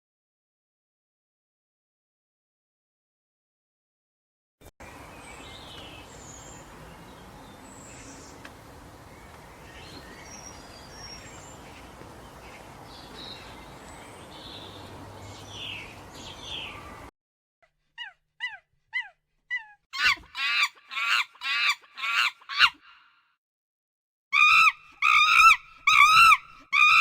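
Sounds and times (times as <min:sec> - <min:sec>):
bird chirps: 0:04.8 - 0:17.1
outdoor background hiss: 0:04.8 - 0:17.1.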